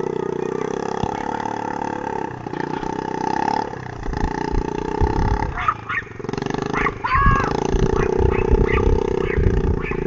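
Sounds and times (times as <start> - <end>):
engine droning hum: 0.0 - 10.0.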